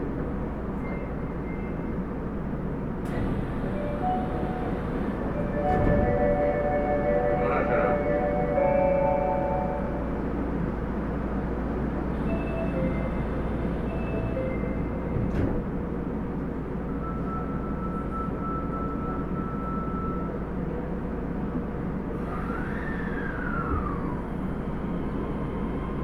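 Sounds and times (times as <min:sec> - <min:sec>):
subway train rail rumble: 0:00.0 - 0:26.0
train motor whine: 0:03.1 - 0:10.3, 0:12.1 - 0:15.7, 0:22.1 - 0:26.0.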